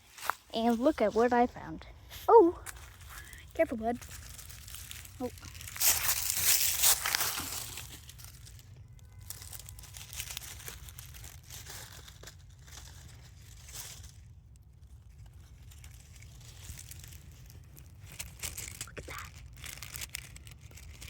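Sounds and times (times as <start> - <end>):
rustling and crinkling handling noise: 0.0 - 21.0
steady low rumble: 0.0 - 21.0.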